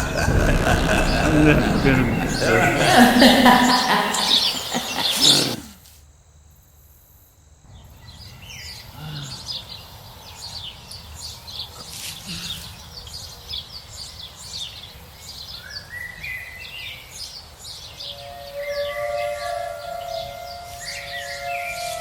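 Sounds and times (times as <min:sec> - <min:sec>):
rising stepped tones: 0:00.0 - 0:05.0
birds chirping: 0:00.0 - 0:05.6.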